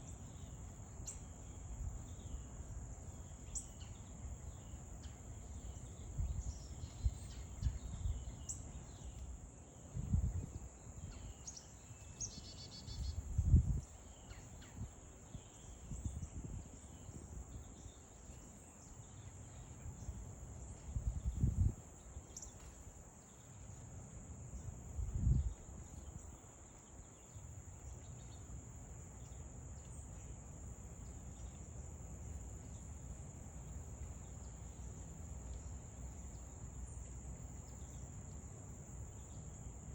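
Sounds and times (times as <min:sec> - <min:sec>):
faint bird chirps: 0:00.0 - 0:23.8
crickets trilling: 0:00.0 - 0:39.9.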